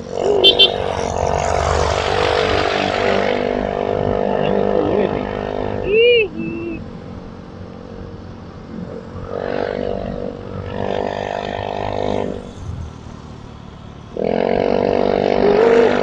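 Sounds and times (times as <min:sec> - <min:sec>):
motorcycle engine under throttle: 0:08.8 - 0:16.0.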